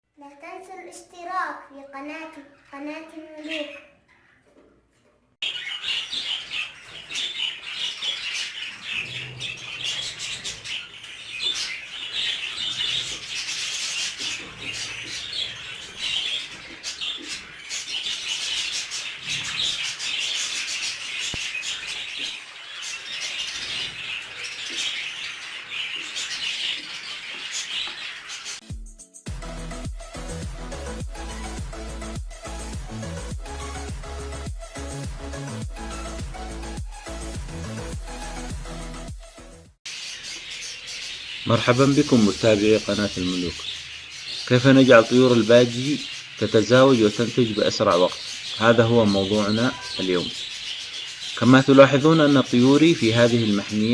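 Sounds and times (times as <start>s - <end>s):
budgerigars chattering: 5.4s - 28.6s, 39.9s - 53.9s.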